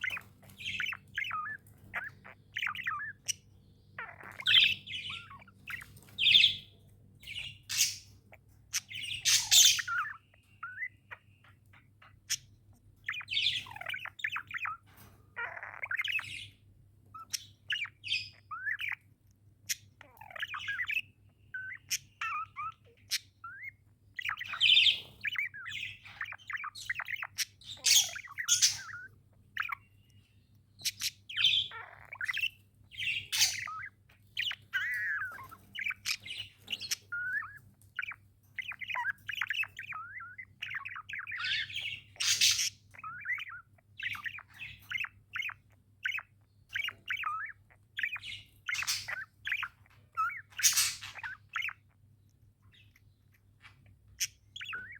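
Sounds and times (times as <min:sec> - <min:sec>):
harsh bird squawks: 0:00.0 - 0:19.0, 0:19.7 - 0:30.1, 0:30.7 - 0:51.9
budgerigars chirping: 0:00.0 - 0:54.9
faint low hum: 0:00.0 - 0:54.9.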